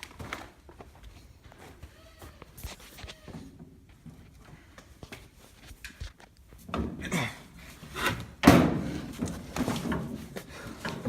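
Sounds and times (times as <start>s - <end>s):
knocking and clattering handling: 6.6s - 11.0s.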